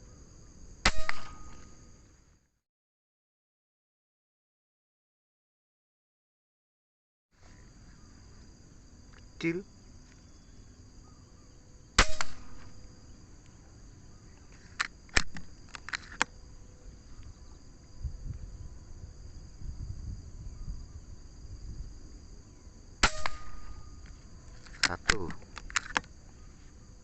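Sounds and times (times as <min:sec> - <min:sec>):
air rifle shot: 0:00.8 - 0:01.8, 0:12.0 - 0:12.8, 0:23.0 - 0:24.0
sharp clicks: 0:14.8 - 0:16.3, 0:23.0 - 0:26.1.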